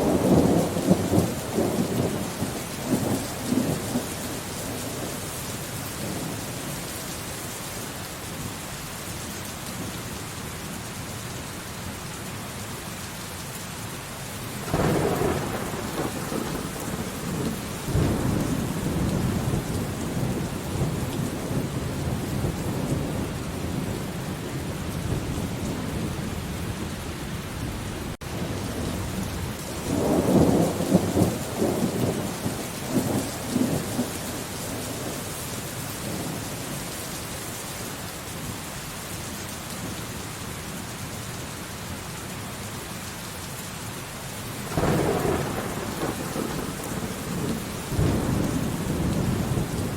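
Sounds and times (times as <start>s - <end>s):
steady rain: 0.0s - 49.9s
thunder rumbling: 14.6s - 35.2s, 44.6s - 49.9s.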